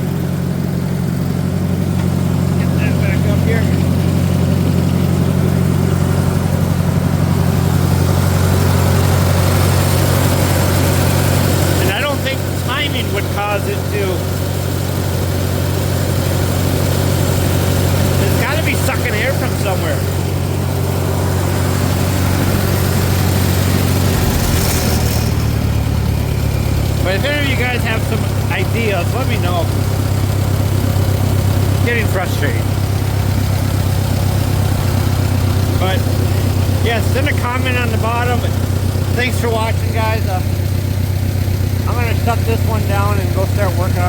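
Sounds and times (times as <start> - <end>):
tractor engine idling: 0.0 - 44.0.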